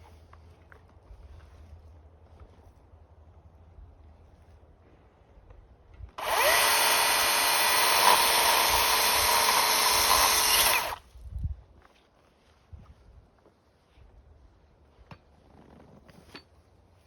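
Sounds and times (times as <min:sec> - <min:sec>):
power tool motor spinning: 0:06.2 - 0:11.0.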